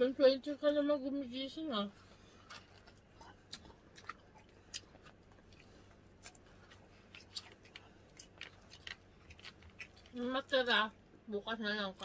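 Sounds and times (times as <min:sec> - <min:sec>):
person chewing food: 0:02.0 - 0:10.9.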